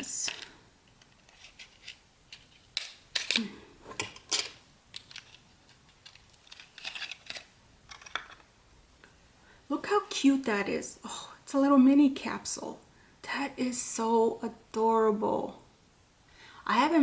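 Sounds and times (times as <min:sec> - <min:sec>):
packaging clicks taps and scrapes: 0:00.2 - 0:08.4.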